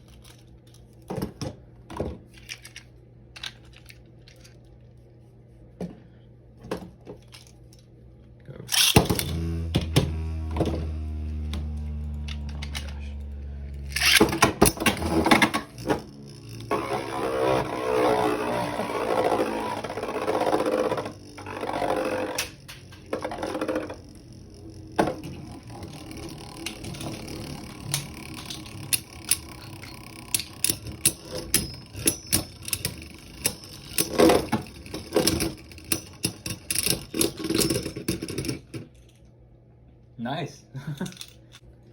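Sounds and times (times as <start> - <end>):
spinning tops whirring and scraping: 8.7 - 38.8.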